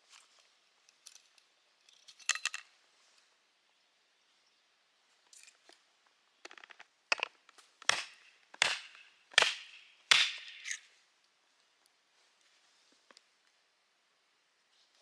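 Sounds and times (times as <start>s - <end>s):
wood crackling: 6.4s - 10.8s
hammer striking a log: 7.2s - 10.8s.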